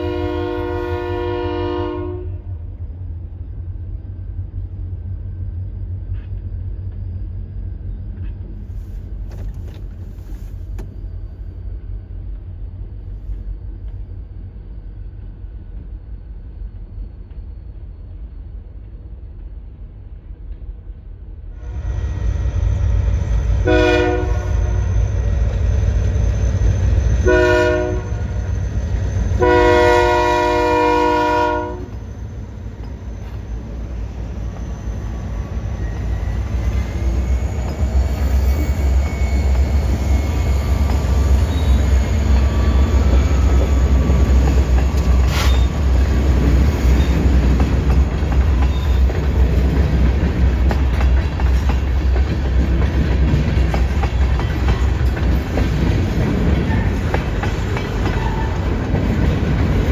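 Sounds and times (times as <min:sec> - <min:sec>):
locomotive horn blasts: 0:00.0 - 0:02.5, 0:23.5 - 0:24.9, 0:27.2 - 0:28.4, 0:29.4 - 0:32.0
train wheels clattering on rails: 0:22.9 - 0:59.9.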